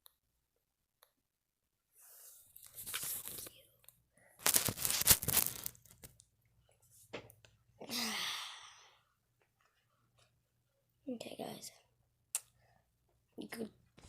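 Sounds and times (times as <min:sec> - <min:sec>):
crinkling and rustling: 0:02.5 - 0:06.2.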